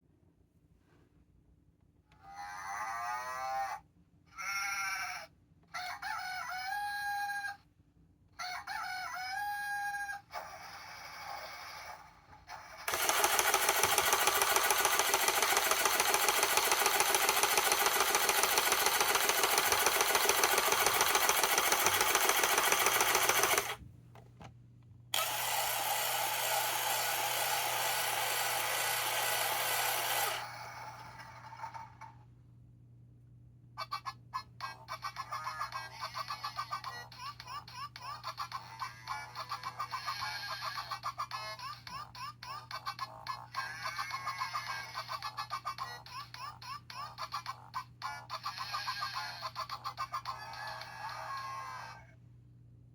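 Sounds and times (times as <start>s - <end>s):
toy electronic sound effects: 2.2s - 5.3s, 9.8s - 23.8s, 25.2s - 32.1s, 33.8s - 52.1s.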